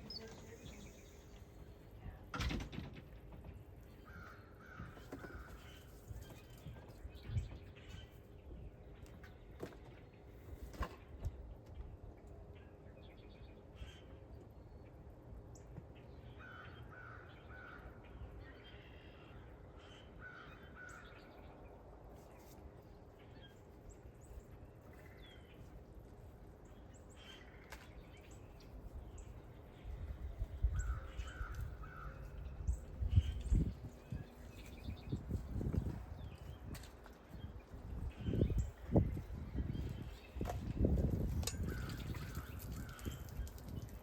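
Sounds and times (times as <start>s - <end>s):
crows cawing: 4.1s - 5.6s, 16.4s - 17.9s, 30.8s - 32.3s.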